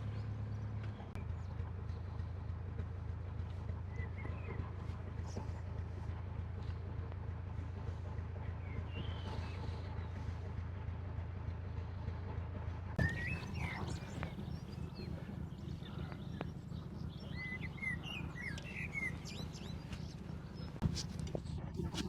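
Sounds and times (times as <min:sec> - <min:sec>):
birds chirping: 0:00.0 - 0:10.5, 0:13.0 - 0:22.0
diesel engine humming: 0:00.0 - 0:22.0.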